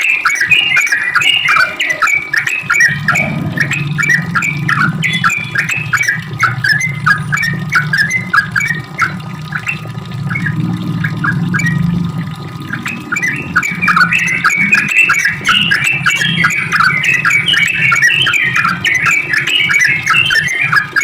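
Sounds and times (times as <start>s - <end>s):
bird singing bubbly chattering notes: 0.0s - 21.0s
steady low hum: 2.6s - 19.2s.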